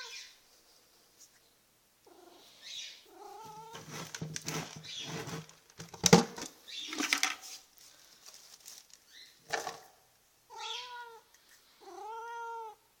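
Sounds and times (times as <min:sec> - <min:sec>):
cat meowing: 0:10.5 - 0:12.8.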